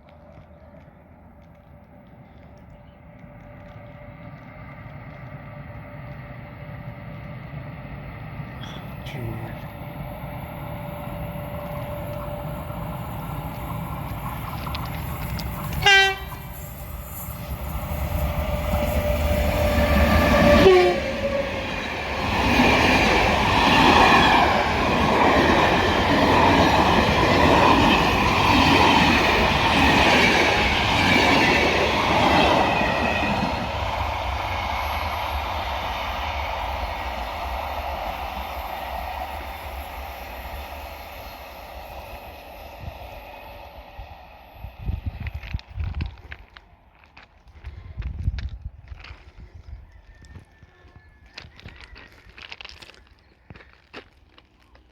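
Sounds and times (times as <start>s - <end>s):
train rumble and wheel clatter: 0.0s - 54.9s
train horn blast: 15.8s - 16.5s, 19.2s - 21.5s.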